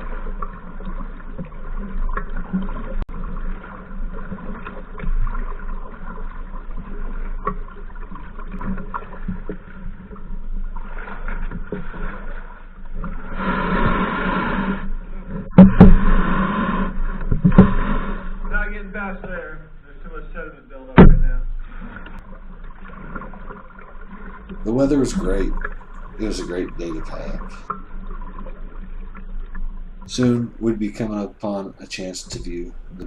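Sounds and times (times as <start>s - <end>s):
paddle splashing water: 0.0s - 33.0s
rush of water: 0.0s - 33.0s
knocks against kayak hull: 21.0s - 21.5s
sharp loud knock: 21.0s - 21.5s.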